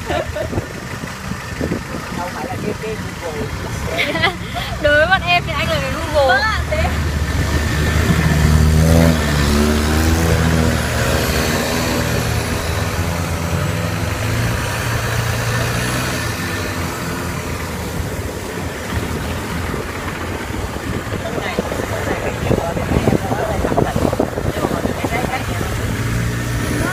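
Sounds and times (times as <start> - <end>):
boat engine revving: 0.0 - 26.9.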